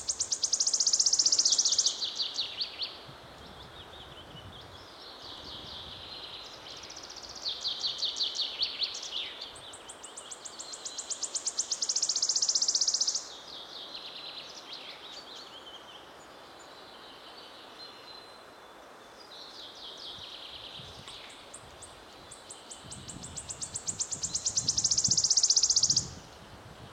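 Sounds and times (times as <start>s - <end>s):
bird singing rapid trills: 0.0s - 3.0s, 6.5s - 13.7s, 21.2s - 26.3s
outdoor background noise: 0.0s - 26.9s.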